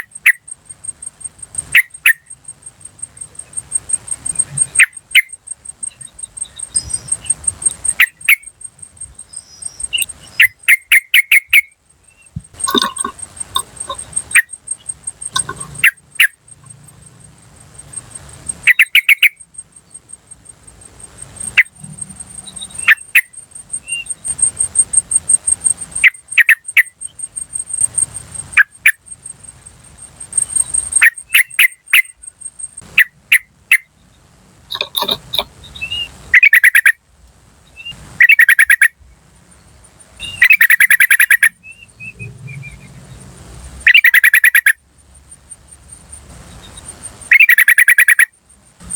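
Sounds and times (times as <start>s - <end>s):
thin high-pitched ticking: 0.0s - 34.0s, 34.6s - 37.0s, 38.2s - 48.9s
bulbuls chattering calls: 3.1s - 8.5s, 12.3s - 17.0s, 34.7s - 37.0s, 40.2s - 41.6s, 43.9s - 44.8s, 47.3s - 48.3s.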